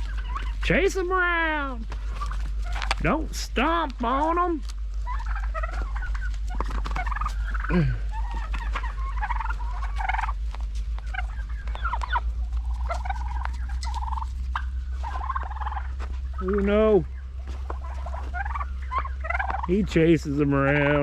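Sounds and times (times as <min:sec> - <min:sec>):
steady low rumble: 0:00.0 - 0:21.0
turkeys yelping and clucking: 0:00.0 - 0:21.0.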